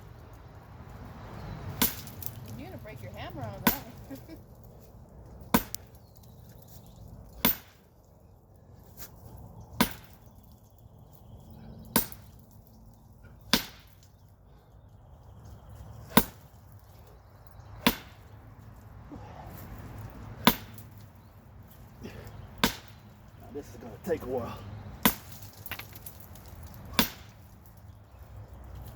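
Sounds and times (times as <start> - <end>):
sledgehammer blows on hard target: 7.4 - 7.8, 13.5 - 14.0, 16.1 - 16.5, 17.8 - 18.3, 20.4 - 20.9, 26.8 - 27.4.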